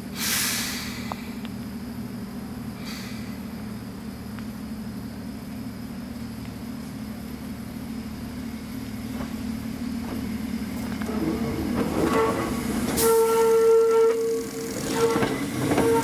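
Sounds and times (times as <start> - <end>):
electric railcar running noise: 0.0 - 16.0
wheels squealing on a curve: 10.9 - 16.0.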